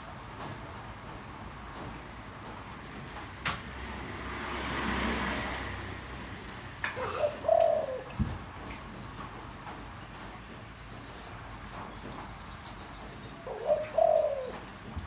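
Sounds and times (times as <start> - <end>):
vehicle passing: 3.6 - 8.1
dove cooing: 6.8 - 8.7, 13.3 - 15.0.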